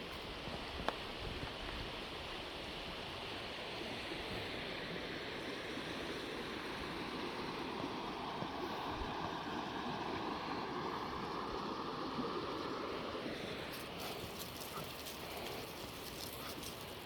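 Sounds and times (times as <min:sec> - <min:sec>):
floodwater rushing: 0:05.9 - 0:17.0.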